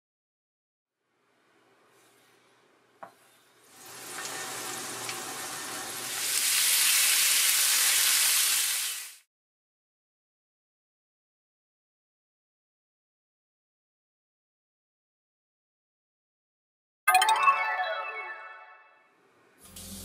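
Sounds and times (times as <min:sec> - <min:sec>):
garlic sizzling in hot oil: 0:03.6 - 0:09.3.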